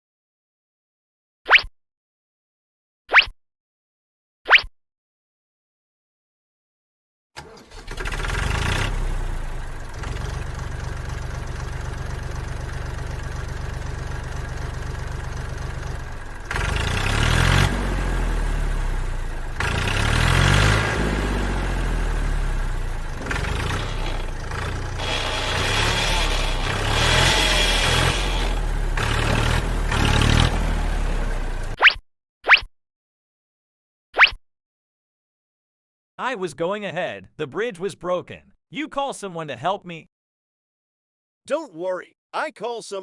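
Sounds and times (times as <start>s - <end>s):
vehicle engine running and revving: 7.9s - 31.8s.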